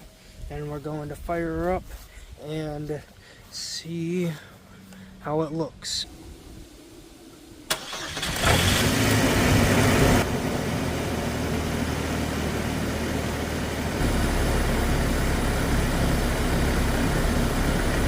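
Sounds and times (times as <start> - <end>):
pickup engine starting and idling: 6.1 - 18.0.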